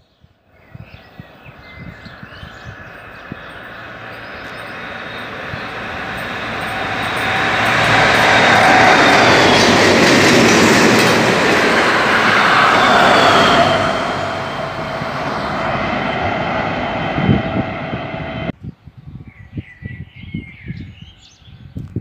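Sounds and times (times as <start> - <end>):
locomotive engine and wheel noise: 1.8 - 18.5.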